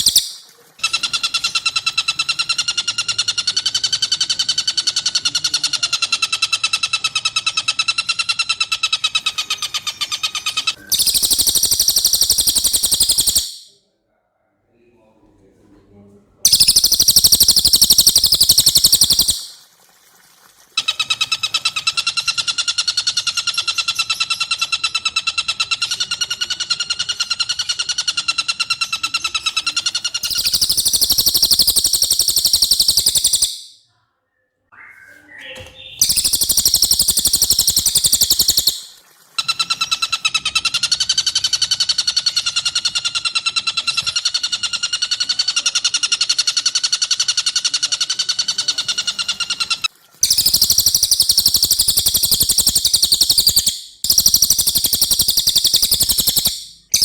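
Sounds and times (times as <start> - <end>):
bird song pulsed trills: 0.0 - 5.9, 8.0 - 13.8, 16.5 - 19.6, 29.1 - 33.8, 34.7 - 40.2, 48.4 - 57.0.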